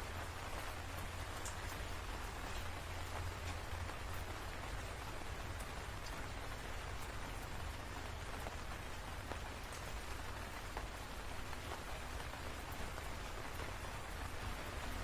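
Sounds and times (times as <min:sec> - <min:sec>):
steady rain hiss: 0:00.0 - 0:15.0
raindrop taps: 0:01.0 - 0:01.8.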